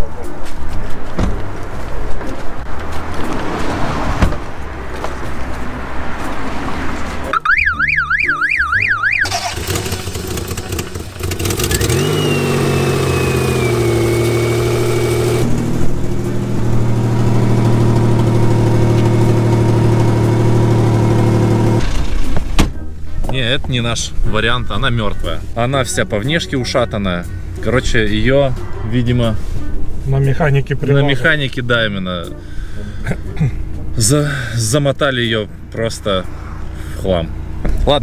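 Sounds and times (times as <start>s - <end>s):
car engine starting and idling: 3.1s - 22.9s
car alarm warbling: 7.3s - 9.6s.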